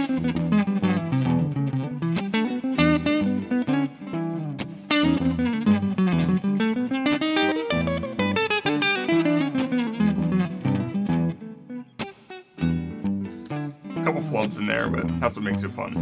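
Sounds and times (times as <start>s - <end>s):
guitar playing fast jazz lines: 13.3s - 16.0s.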